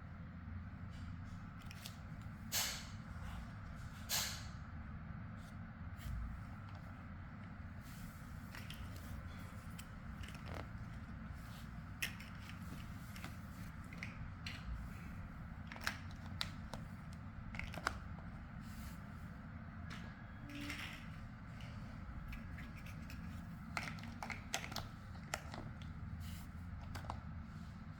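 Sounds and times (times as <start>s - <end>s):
steady low hum: 0.0s - 27.9s
plastic blocks clicking: 12.0s - 14.7s, 15.6s - 18.3s, 20.5s - 25.9s.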